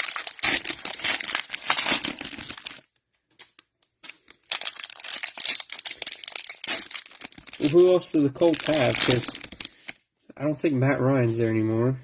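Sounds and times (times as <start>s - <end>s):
plastic wrapper crinkling: 0.0s - 10.0s.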